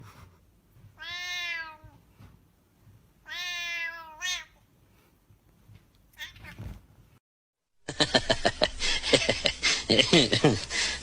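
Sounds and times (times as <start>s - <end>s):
cat meowing: 1.0s - 2.0s, 3.2s - 4.6s, 6.2s - 6.8s.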